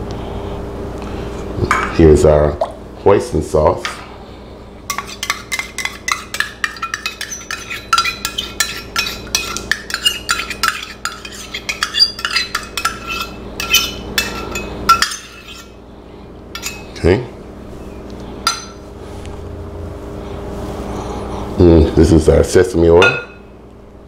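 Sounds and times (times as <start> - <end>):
spoon scraping metal cup: 4.9 - 15.8, 16.6 - 17.0.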